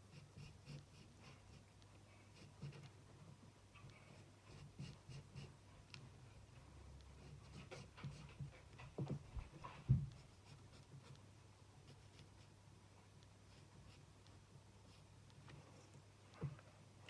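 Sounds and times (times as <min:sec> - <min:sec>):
marker scratching on card: 0:04.5 - 0:05.5.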